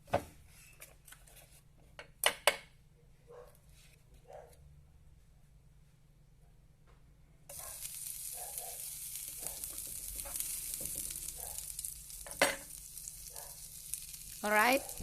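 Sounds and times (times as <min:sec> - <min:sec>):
butter sizzling in frying pan: 0:07.5 - 0:15.0.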